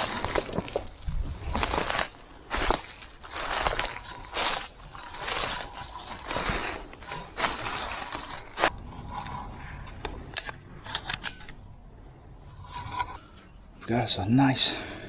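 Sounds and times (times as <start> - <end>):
footsteps crunching dry leaves: 0.0 - 8.9.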